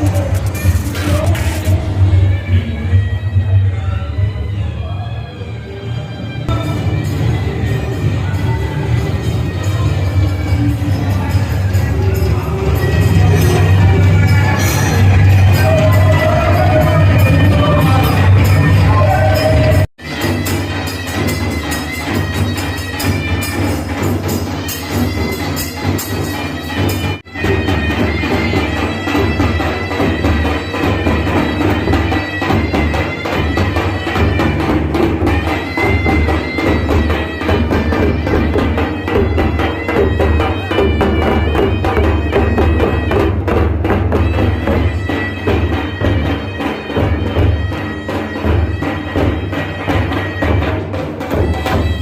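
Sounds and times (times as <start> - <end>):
fast drumming: 0.0 - 2.0
reedy wind instrument: 0.0 - 52.0.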